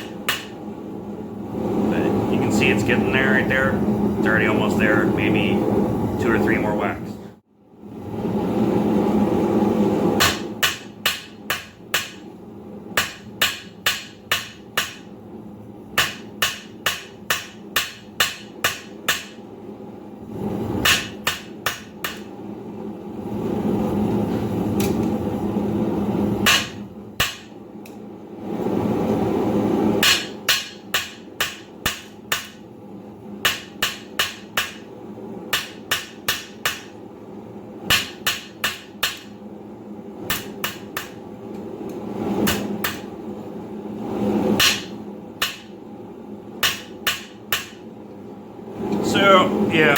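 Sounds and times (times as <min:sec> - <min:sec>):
hammer striking steel on anvil: 0:00.0 - 0:00.6, 0:10.2 - 0:12.2, 0:13.0 - 0:15.1, 0:16.0 - 0:19.4, 0:20.8 - 0:22.3, 0:26.4 - 0:27.6, 0:30.0 - 0:32.6, 0:33.4 - 0:34.9, 0:35.5 - 0:37.0, 0:37.9 - 0:39.4, 0:40.3 - 0:41.2, 0:42.4 - 0:43.1, 0:44.6 - 0:45.8, 0:46.6 - 0:47.8.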